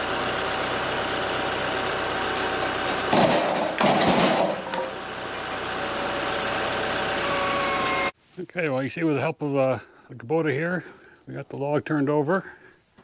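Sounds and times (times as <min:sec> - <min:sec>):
tractor diesel engine running: 0:00.0 - 0:08.2
log crunching against mill: 0:02.3 - 0:05.0.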